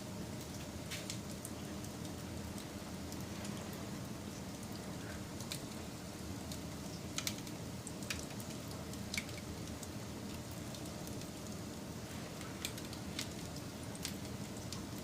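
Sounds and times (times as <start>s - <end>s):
wood fire rumbling: 0.3s - 15.0s
fire crackling pops: 0.4s - 1.5s, 6.4s - 11.6s, 12.3s - 15.0s.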